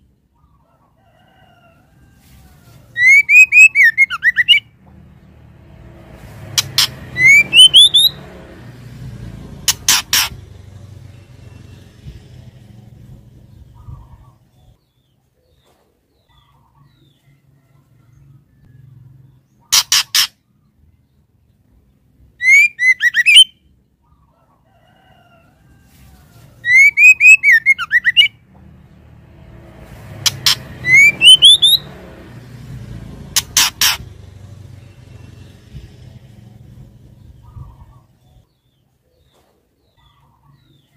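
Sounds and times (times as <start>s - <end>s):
bird rising chirps: 2.9s - 4.7s, 6.5s - 8.4s, 22.4s - 23.7s, 26.6s - 28.4s, 30.2s - 32.0s.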